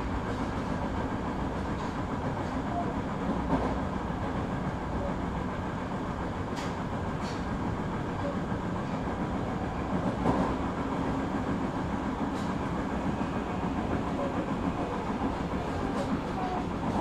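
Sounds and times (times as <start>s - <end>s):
train wheels rumbling on rails: 0.0s - 17.0s
track clack: 9.9s - 10.8s.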